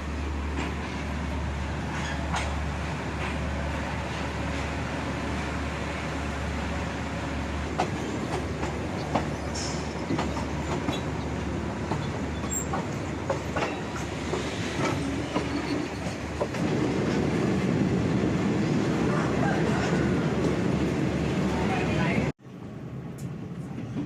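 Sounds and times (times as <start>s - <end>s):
train rumbling: 0.0s - 24.0s
wheels clacking over rails: 7.7s - 17.5s.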